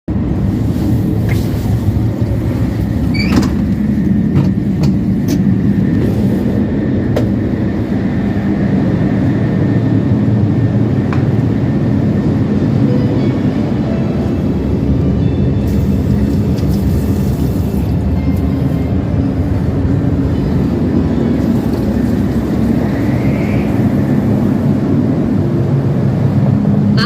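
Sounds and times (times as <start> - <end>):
train rumbling at speed: 0.1 - 27.0.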